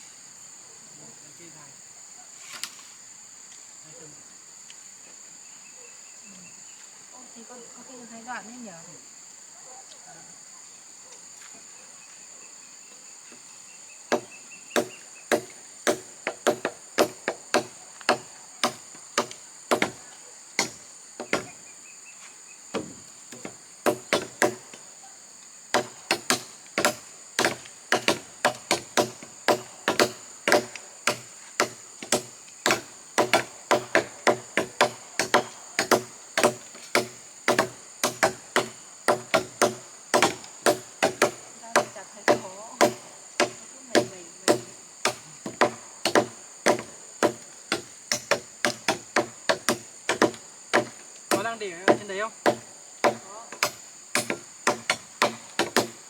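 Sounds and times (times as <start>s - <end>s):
insects droning: 0.0s - 56.0s
blade chopping wood: 14.1s - 20.0s, 20.6s - 21.5s, 22.8s - 24.8s, 25.7s - 56.0s.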